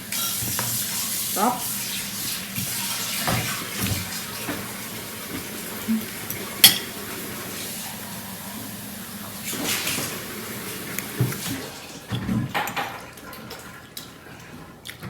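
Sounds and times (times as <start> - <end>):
cutlery clinking on dishes: 6.6 - 7.0.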